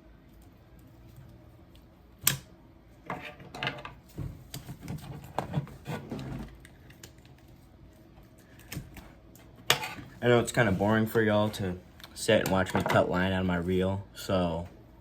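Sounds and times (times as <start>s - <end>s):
clicks and scrapes: 9.6s - 10.2s.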